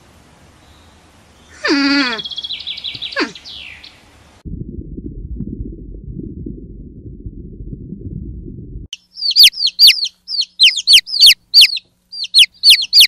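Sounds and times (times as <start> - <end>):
steady low rumbling noise: 4.0 - 9.0
high chirps and squeaks: 9.0 - 13.0.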